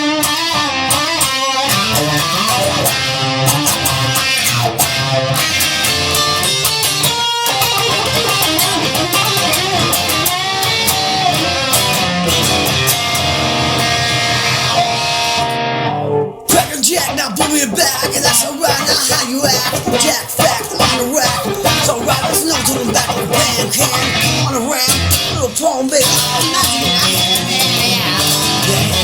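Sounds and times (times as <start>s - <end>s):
bass guitar: 0.0s - 29.0s
electric guitars: 0.0s - 29.0s
steady drum beat: 16.5s - 29.0s.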